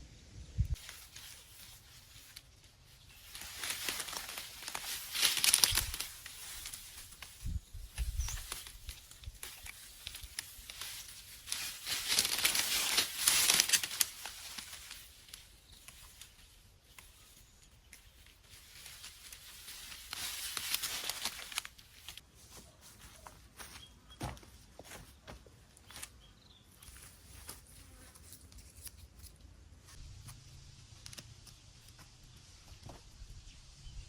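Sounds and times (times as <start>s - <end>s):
dry plant material rustling: 0.7s - 30.1s.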